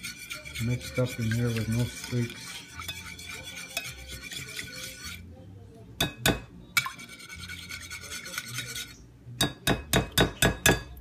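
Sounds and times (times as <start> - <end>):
utensil beating batter in glass pan: 0.0 - 5.3, 6.3 - 9.0
utensil scraping against glass: 0.0 - 5.3, 6.8 - 9.0.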